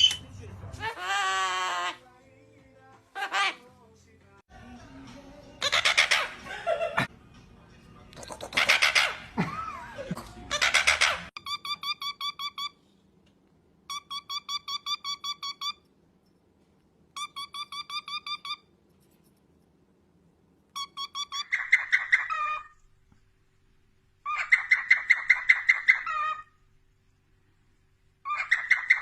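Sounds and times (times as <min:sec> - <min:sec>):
trilling ringtone beeps: 0:13.9 - 0:15.8.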